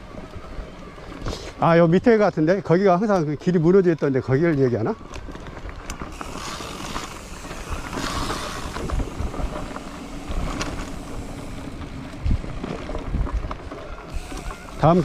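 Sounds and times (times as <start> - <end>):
wind rushing over microphone: 6.2 - 14.2.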